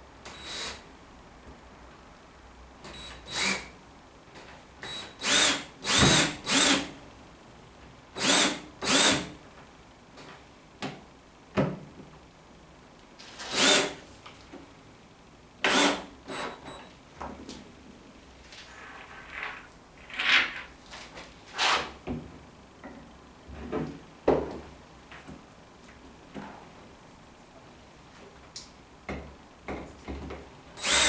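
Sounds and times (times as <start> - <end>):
power drill driving screws into wood: 3.3 - 3.7, 4.9 - 6.9, 8.2 - 9.3, 13.4 - 14.0, 15.7 - 16.5, 30.8 - 31.0.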